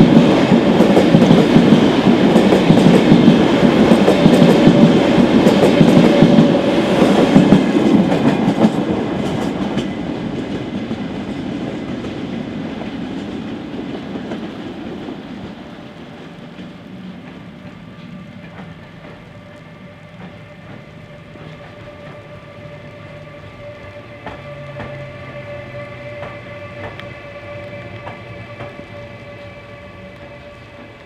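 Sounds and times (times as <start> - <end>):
train wheels clattering: 0.0 - 15.2, 24.1 - 29.6.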